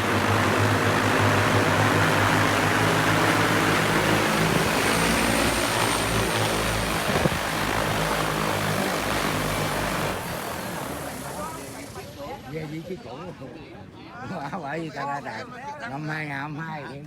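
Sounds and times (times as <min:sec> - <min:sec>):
drone propellers whirring: 0:00.0 - 0:12.2.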